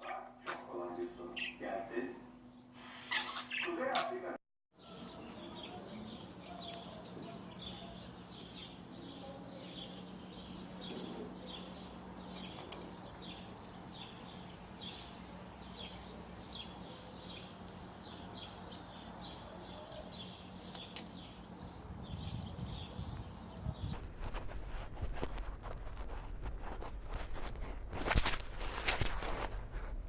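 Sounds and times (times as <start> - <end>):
steady low hum: 0.0 - 30.0
small bird chirping: 2.6 - 4.2, 4.8 - 24.0.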